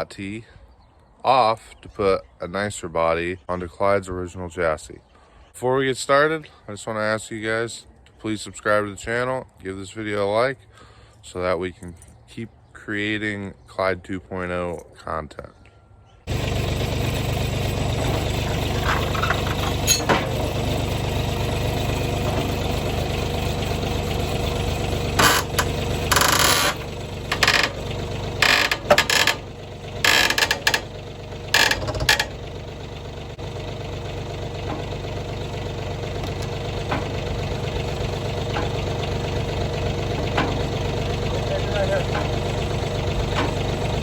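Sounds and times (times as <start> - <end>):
engine idling: 16.3 - 44.0.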